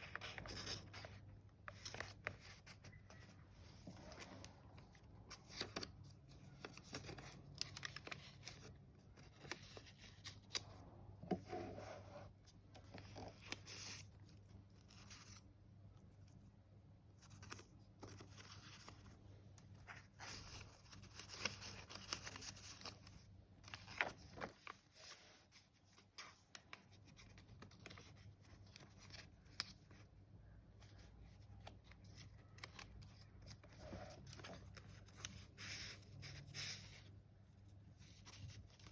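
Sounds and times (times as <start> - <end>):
paper pages rustling: 0.0 - 12.1, 17.2 - 30.0, 30.9 - 37.0.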